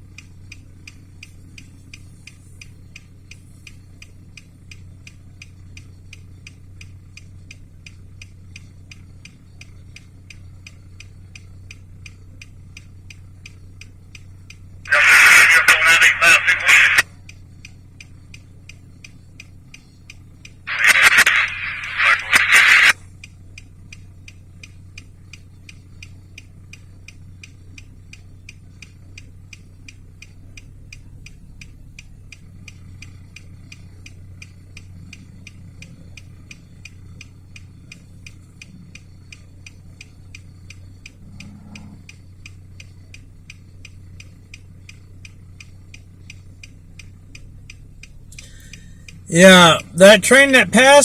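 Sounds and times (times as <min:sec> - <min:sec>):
faint regular ticking: 0:00.1 - 0:51.0
steady low hum: 0:14.7 - 0:17.1, 0:20.7 - 0:23.0
loud rush of noise: 0:20.7 - 0:22.9.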